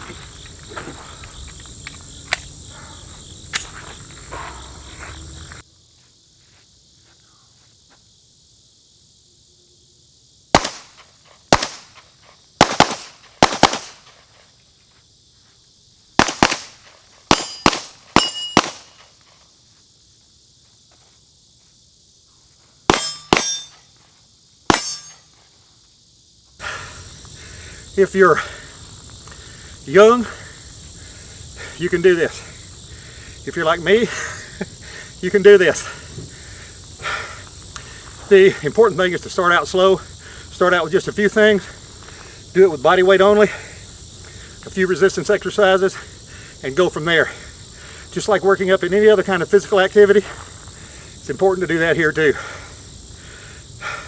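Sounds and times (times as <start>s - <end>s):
handgun shots: 10.6s - 11.9s, 12.6s - 14.0s, 16.2s - 19.0s, 22.9s - 23.7s, 24.7s - 25.2s
short metallic ring: 17.4s - 18.6s, 22.9s - 23.9s, 24.7s - 25.3s.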